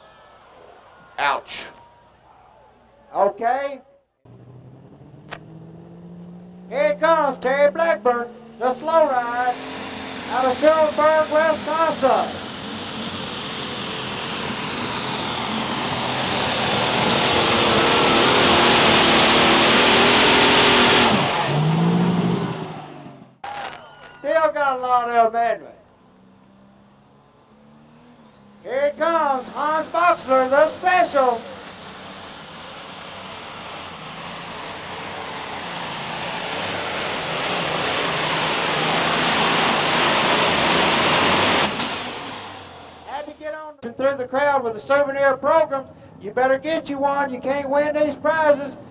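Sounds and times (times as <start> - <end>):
tractor engine roaring under load: 4.3 - 23.4, 25.9 - 43.4
high-pitched whine: 7.2 - 22.7, 26.9 - 43.5.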